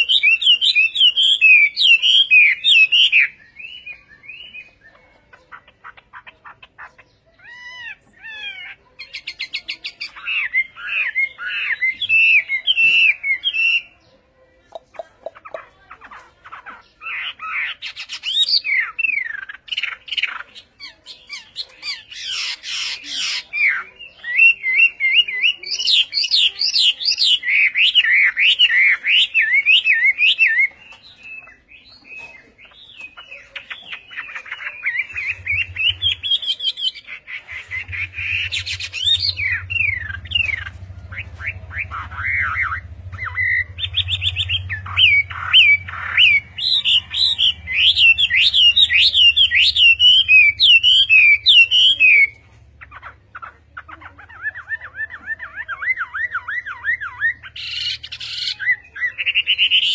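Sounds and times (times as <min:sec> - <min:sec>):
songbird singing: 0:00.0 - 0:59.9
steady low hum: 0:37.5 - 0:53.2.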